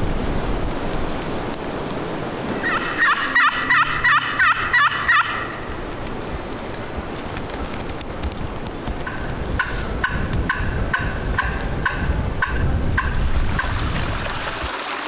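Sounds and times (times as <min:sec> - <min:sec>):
wind noise: 0:00.0 - 0:14.9
turkey yelps: 0:02.6 - 0:05.8.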